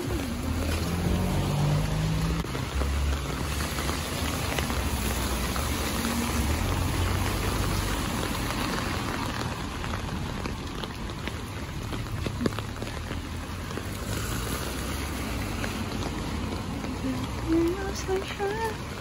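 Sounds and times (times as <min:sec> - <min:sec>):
rain on wet pavement: 0:00.0 - 0:19.0.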